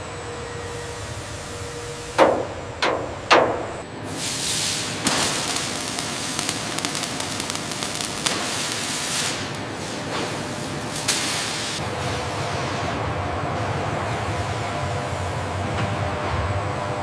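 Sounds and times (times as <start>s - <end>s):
steady machine hiss: 4.0s - 13.0s.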